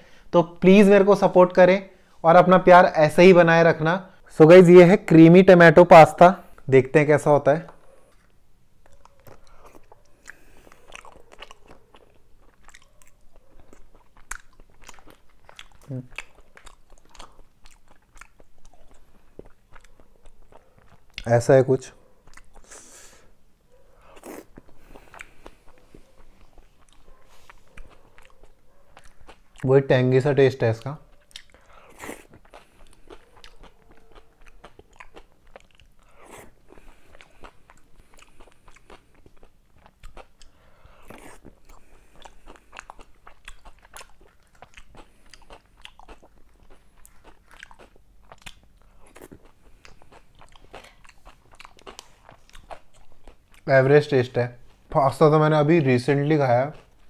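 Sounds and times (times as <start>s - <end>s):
mouth clicks and smacks: 7.5s - 21.4s, 22.2s - 23.2s, 24.0s - 29.8s, 30.8s - 53.7s
person chewing: 7.6s - 21.3s, 22.1s - 29.7s, 30.8s - 53.7s, 56.7s - 57.0s.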